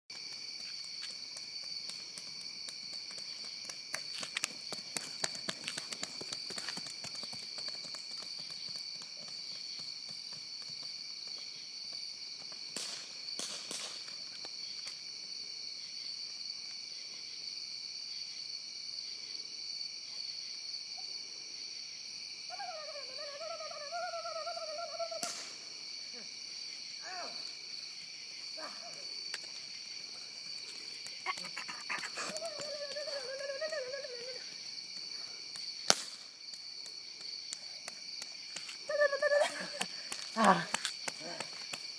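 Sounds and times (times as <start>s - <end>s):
night insect chorus: 0.1s - 41.9s
bb gun cracks: 35.9s - 36.2s.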